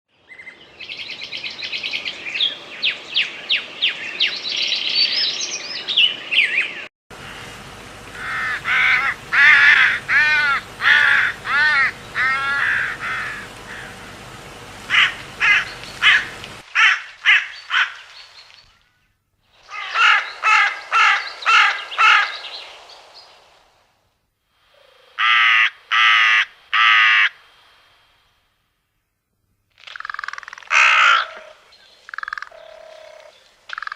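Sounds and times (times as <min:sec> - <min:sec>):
raven croaking: 0:08.1 - 0:18.1, 0:19.7 - 0:22.7, 0:24.8 - 0:28.3, 0:29.7 - 0:33.9
raven clicks: 0:14.8 - 0:18.7, 0:29.7 - 0:33.9.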